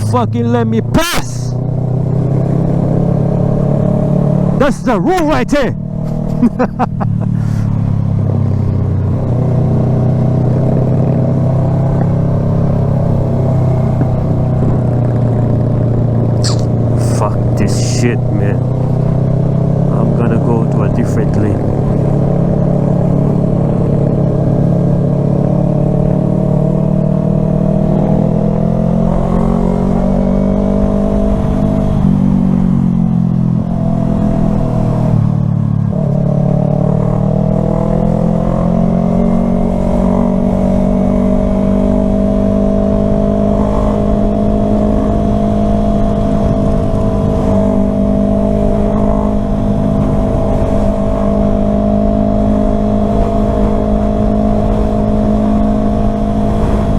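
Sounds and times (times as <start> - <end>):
motorcycle engine running: 0.0 - 56.9
wind rumble on microphone: 8.0 - 17.6, 21.4 - 56.9.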